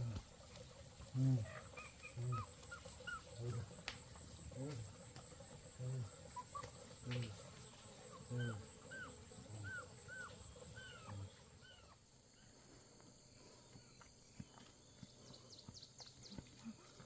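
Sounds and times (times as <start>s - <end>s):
animal low grunts: 1.0s - 11.8s.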